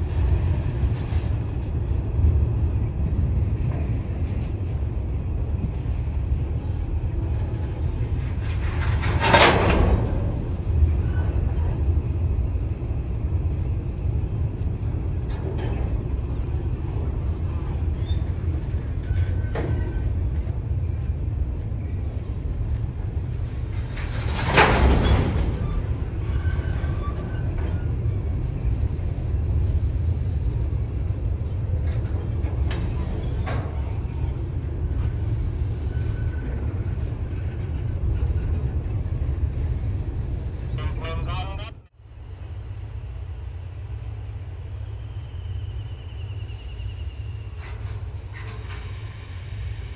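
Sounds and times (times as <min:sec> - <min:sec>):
train rumbling: 0:00.0 - 0:49.9
faint brief squeals: 0:25.0 - 0:27.8.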